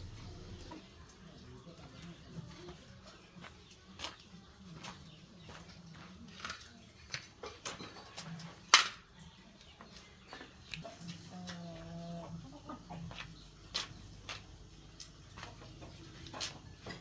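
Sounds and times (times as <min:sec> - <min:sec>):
hen clucking: 0:10.7 - 0:13.4.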